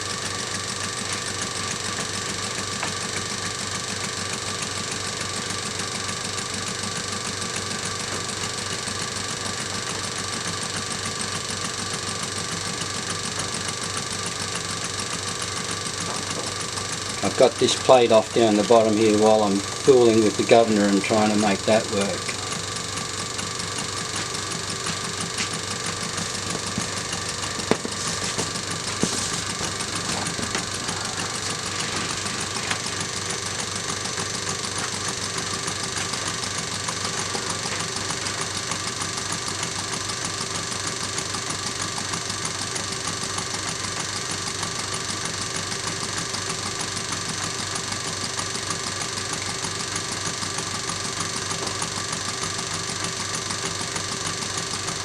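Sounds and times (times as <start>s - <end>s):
model steam engine exhaust beat: 13.1s - 55.0s.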